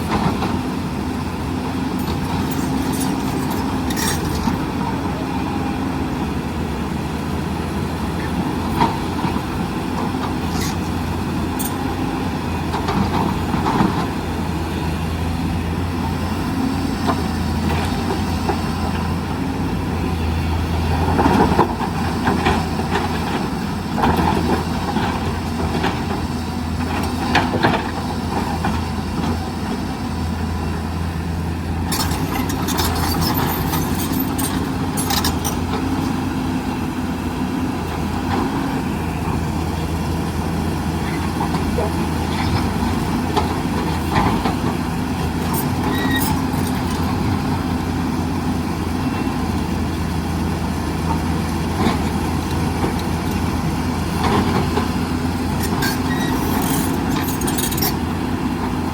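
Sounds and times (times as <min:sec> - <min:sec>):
excavator diesel engine running: 0:00.0 - 0:58.9
metallic clanks and scrapes: 0:02.0 - 0:04.6, 0:31.9 - 0:35.8, 0:45.4 - 0:47.0, 0:55.5 - 0:58.0.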